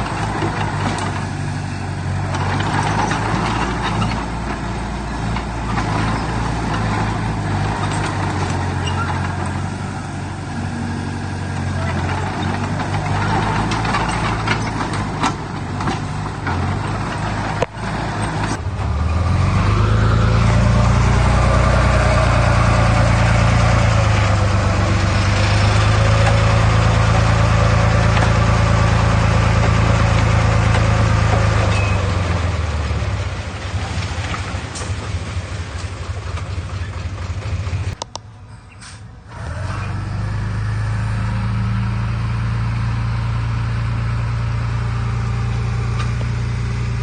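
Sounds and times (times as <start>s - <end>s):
heavy diesel engine revving: 0.0s - 47.0s.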